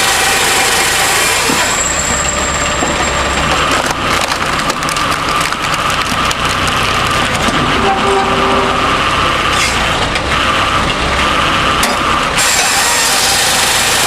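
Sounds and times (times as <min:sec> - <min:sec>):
wood cracking and snapping: 0:03.8 - 0:07.4
machine whine: 0:07.3 - 0:10.5.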